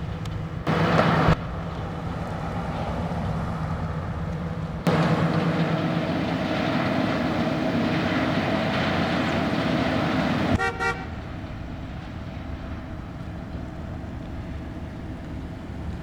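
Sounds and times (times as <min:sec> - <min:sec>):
car engine running: 0:00.0 - 0:16.0
car horn honks: 0:10.6 - 0:11.2.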